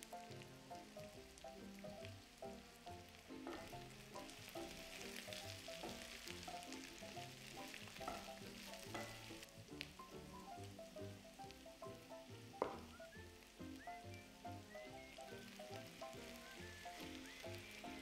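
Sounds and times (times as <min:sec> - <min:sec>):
vegetables sizzling in a skillet: 0:00.0 - 0:18.0
wooden spoon knocking against pan: 0:03.4 - 0:04.4, 0:06.8 - 0:09.5, 0:12.6 - 0:13.0.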